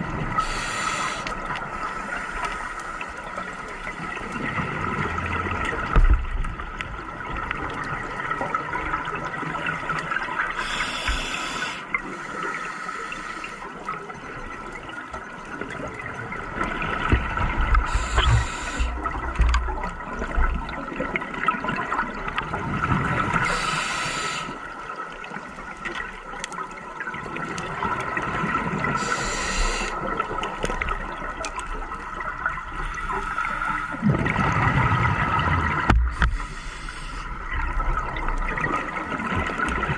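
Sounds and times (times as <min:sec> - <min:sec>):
regulator inhalation hiss: 0:00.4 - 0:02.8, 0:10.6 - 0:11.9, 0:17.9 - 0:19.0, 0:23.4 - 0:24.6, 0:29.0 - 0:30.0, 0:36.2 - 0:37.3.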